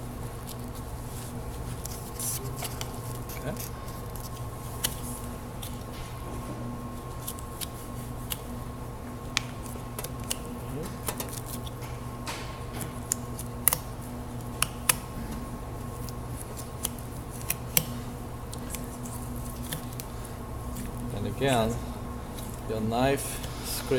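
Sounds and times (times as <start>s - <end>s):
knife clicking and scraping on bone: 12.8s - 15.0s.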